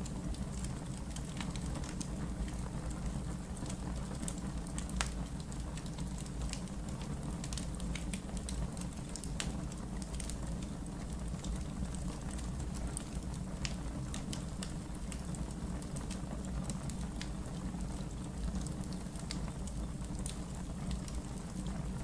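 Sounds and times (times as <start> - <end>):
logs crackling and popping: 0.0 - 22.0
low rumble of flames: 0.0 - 22.0.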